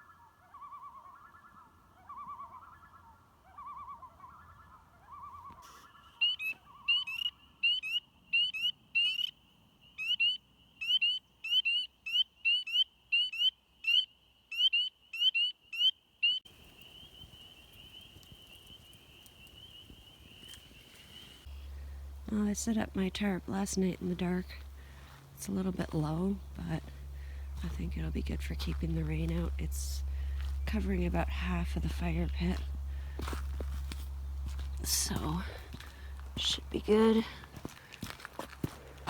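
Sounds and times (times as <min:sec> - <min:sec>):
low repeated bird call: 0:00.0 - 0:22.3.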